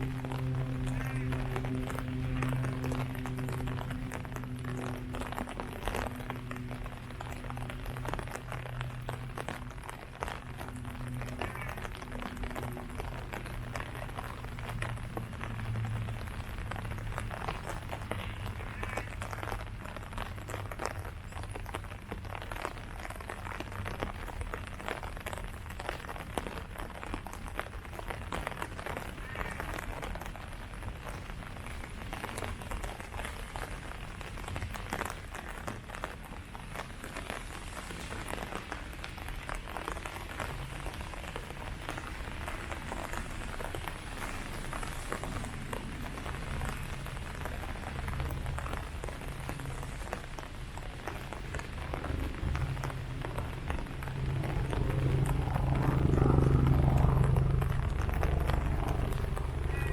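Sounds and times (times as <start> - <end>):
low steady hum: 0.0 - 59.9
rain falling on leaves: 0.0 - 59.9.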